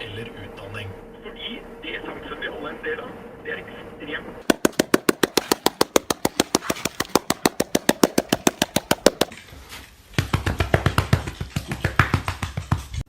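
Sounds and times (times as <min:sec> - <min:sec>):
rapid sharp clicks: 0:04.5 - 0:09.4.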